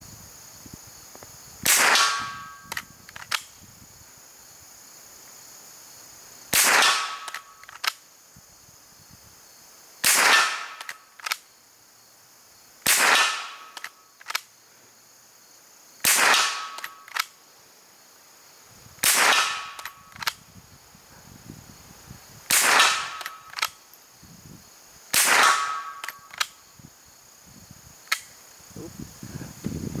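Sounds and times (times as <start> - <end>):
rifle shots: 1.6 - 3.4, 6.5 - 8.0, 10.0 - 11.4, 12.8 - 14.4, 16.0 - 17.3, 19.0 - 20.4, 22.5 - 23.8, 25.1 - 26.6
rifle bolt clicks: 2.4 - 3.5, 7.2 - 8.0, 10.8 - 11.4, 13.7 - 14.5, 16.7 - 17.4, 19.0 - 20.4, 23.1 - 23.8, 25.8 - 26.6, 28.1 - 28.4.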